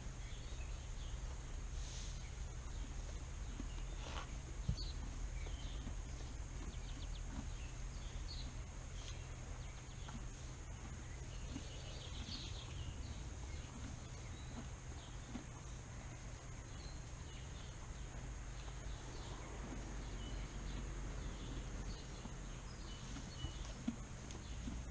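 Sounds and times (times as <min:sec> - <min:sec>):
steady low rumble: 0:00.0 - 0:24.9
steady high hiss: 0:00.7 - 0:02.6.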